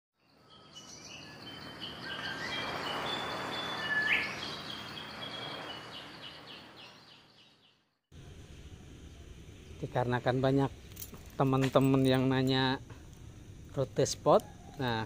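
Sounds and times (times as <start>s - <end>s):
birds chirping and calling: 0.5s - 7.8s.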